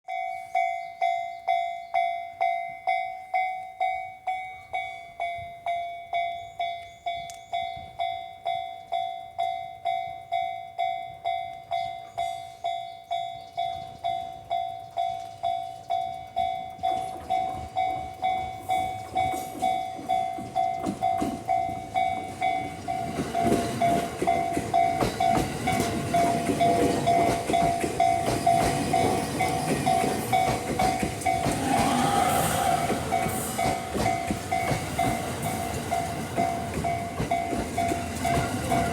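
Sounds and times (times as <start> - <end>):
level crossing warning bell: 0.1 - 38.9
electric train rumbling past: 15.7 - 38.9.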